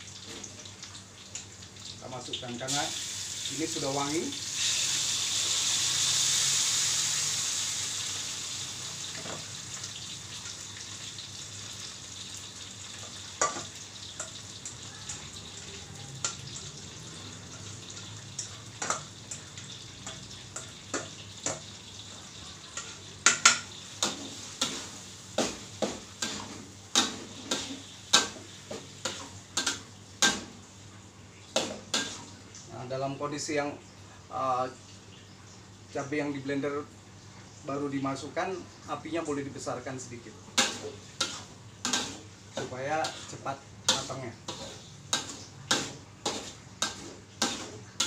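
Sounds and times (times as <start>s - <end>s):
paste sizzling in hot oil: 2.0s - 30.8s, 31.4s - 32.4s, 38.2s - 48.0s
metal spatula knocking and scraping: 43.9s - 47.8s.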